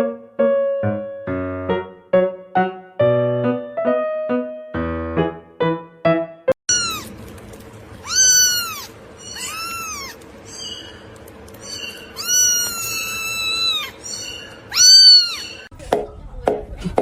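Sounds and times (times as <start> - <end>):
piano music: 0.0 - 7.3
cat meowing: 6.7 - 7.2, 8.0 - 10.8, 11.7 - 15.7.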